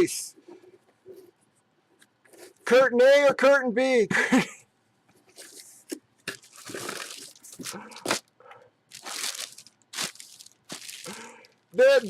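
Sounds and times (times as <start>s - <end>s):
packaging rustling and crinkling: 5.3s - 8.3s, 8.9s - 12.0s.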